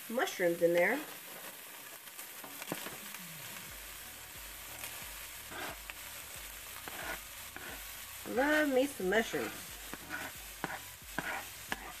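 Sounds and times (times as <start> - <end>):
mushrooms sizzling in a pan: 0.0 - 12.0
knife scraping cutting board: 6.8 - 7.8, 9.3 - 12.0.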